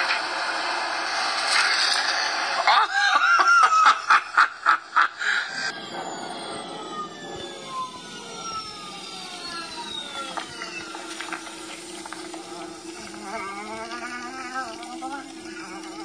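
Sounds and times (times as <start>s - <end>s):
steady hum and hiss: 0.0s - 16.0s
downward gliding whistling tones: 5.5s - 12.9s
wavering musical tones: 5.6s - 16.0s.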